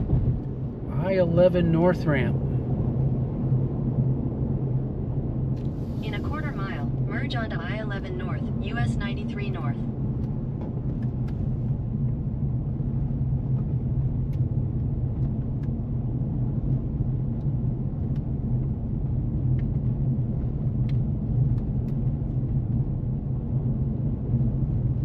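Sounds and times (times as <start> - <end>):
road and engine rumble in car: 0.0 - 25.0.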